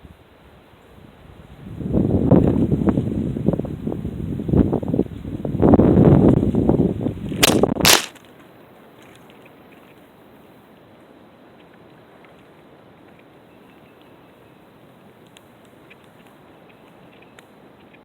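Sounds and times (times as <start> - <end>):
wind buffeting microphone: 1.4 - 7.9
sharp cracks: 7.4 - 8.2.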